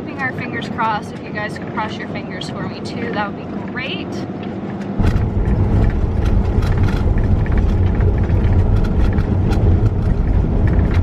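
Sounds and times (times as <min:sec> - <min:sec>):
van driving low rumble: 0:00.0 - 0:11.0
tyres crackling on gravel: 0:05.0 - 0:11.0.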